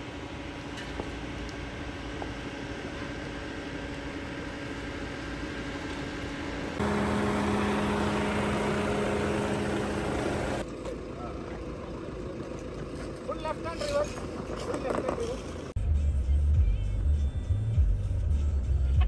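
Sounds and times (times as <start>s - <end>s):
car engine running: 0.0s - 14.7s.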